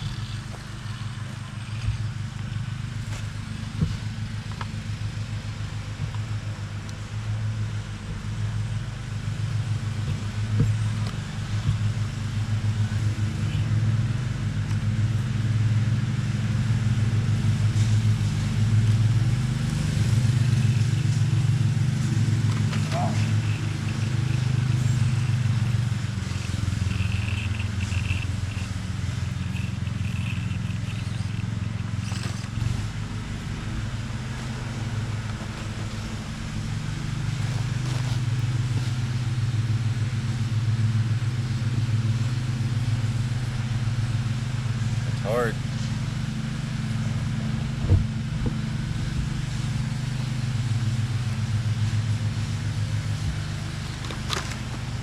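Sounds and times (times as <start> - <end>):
low motor drone: 0.0 - 55.0
faint high whines: 19.6 - 37.4.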